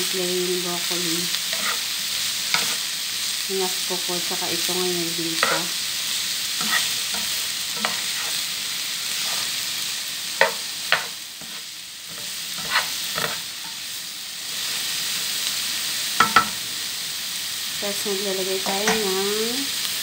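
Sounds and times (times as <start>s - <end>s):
vegetables sizzling in a frying pan: 0.0s - 20.0s
spatula scraping a pan: 1.3s - 2.9s, 5.4s - 9.8s, 10.4s - 13.9s.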